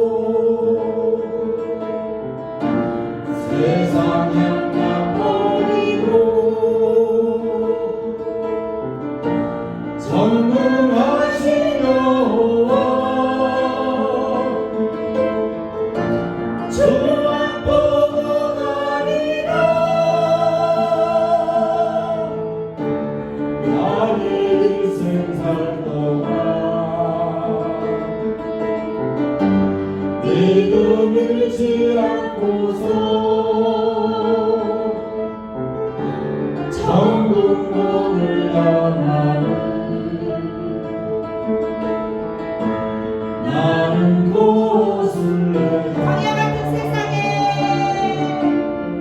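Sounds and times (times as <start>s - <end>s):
voices singing praise song: 0.0s - 1.5s, 3.3s - 8.2s, 10.0s - 15.2s, 16.6s - 22.6s, 23.6s - 28.0s, 30.2s - 35.0s, 36.0s - 41.0s, 43.4s - 48.6s
instrumental accompaniment: 0.0s - 49.0s.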